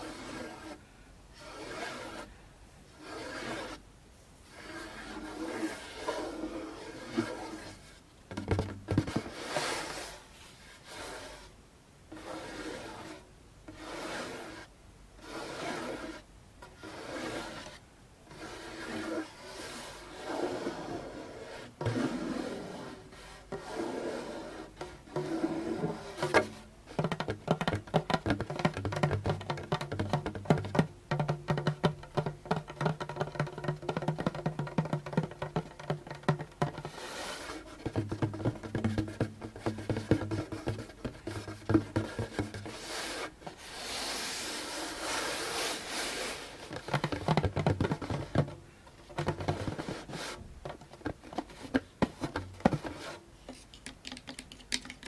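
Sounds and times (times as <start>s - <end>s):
drum head rubbed: 1.4s - 2.3s, 3.0s - 3.8s, 4.5s - 8.0s, 8.6s - 11.5s, 12.1s - 53.2s
fingertip tapping on drum: 26.2s - 37.0s, 37.7s - 42.8s, 46.8s - 48.6s.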